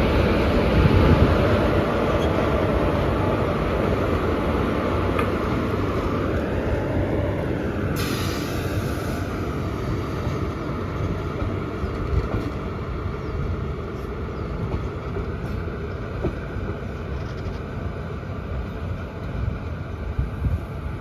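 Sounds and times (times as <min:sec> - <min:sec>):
train wheels rumbling on rails: 0:00.0 - 0:21.0
short hiss: 0:08.0 - 0:09.2.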